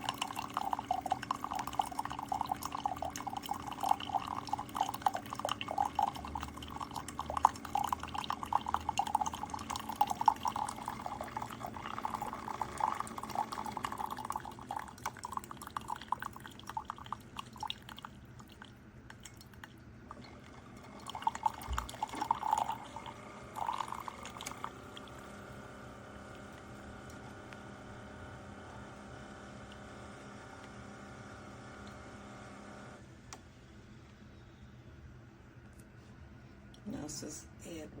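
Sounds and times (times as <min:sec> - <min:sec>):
coffee trickling into a cup: 0:00.0 - 0:27.5.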